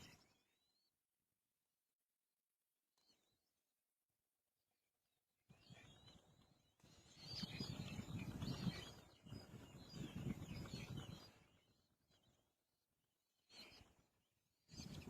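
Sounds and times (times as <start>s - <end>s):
baby birds chirping: 5.8s - 12.4s.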